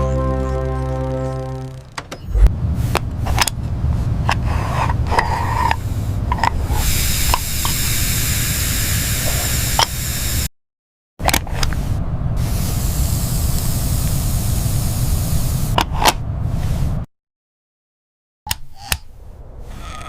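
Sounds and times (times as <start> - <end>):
low rumble: 0.0 - 6.9, 11.6 - 17.1
loud hiss: 6.7 - 10.5, 12.4 - 15.8.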